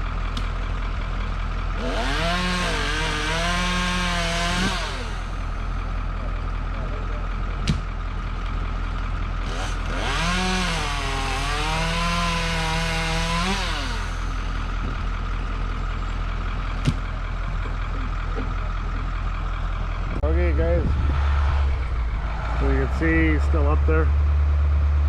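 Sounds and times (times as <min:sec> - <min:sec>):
large diesel engine running: 0:00.0 - 0:25.0
chainsaw cutting a branch: 0:01.8 - 0:05.6, 0:09.4 - 0:14.4.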